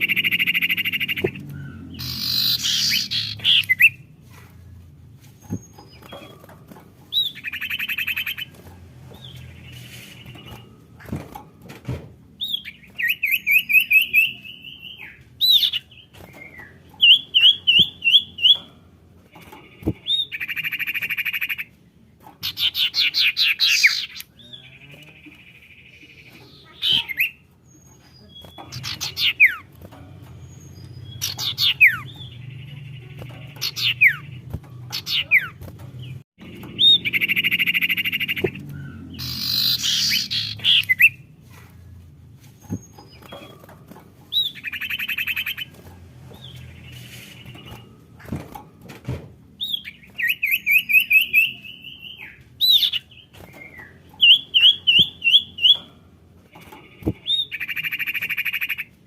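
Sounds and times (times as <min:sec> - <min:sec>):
bird calling with trills: 0:00.0 - 0:04.1, 0:07.1 - 0:08.6, 0:22.4 - 0:29.7, 0:30.5 - 0:41.6, 0:49.6 - 0:55.8, 0:56.8 - 0:59.0.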